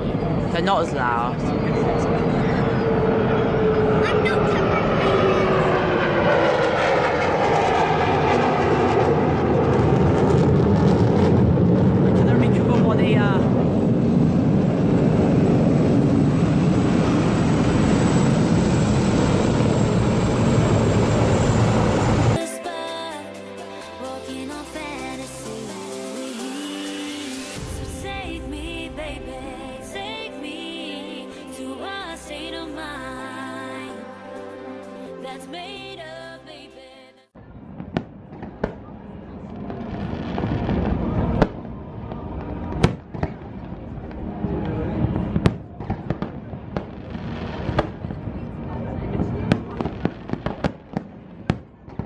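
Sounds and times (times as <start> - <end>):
aeroplanes flying low past: 0.0 - 22.4
fireworks bangs and crackling: 7.5 - 19.8, 37.4 - 52.0.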